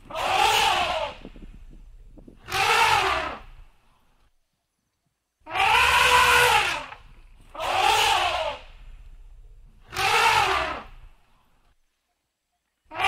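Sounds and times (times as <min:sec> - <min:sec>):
elephant trumpeting: 0:00.0 - 0:01.3, 0:02.4 - 0:03.6, 0:05.5 - 0:08.7, 0:09.8 - 0:11.0.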